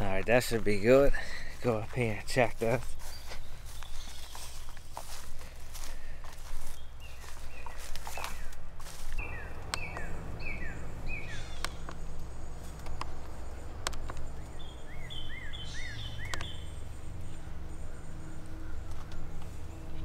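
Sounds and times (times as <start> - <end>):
low steady hum: 0.0 - 20.0
songbird singing: 0.0 - 20.0
sharp clicks: 11.6 - 14.5, 16.2 - 16.6.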